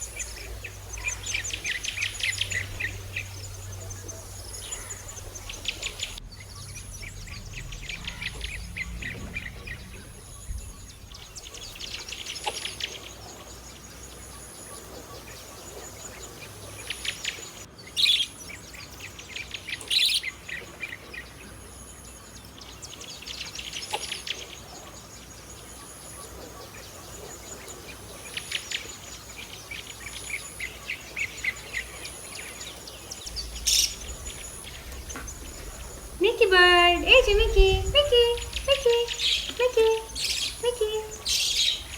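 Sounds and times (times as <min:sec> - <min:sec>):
budgerigar chattering: 0:00.0 - 0:10.4, 0:33.2 - 0:41.9.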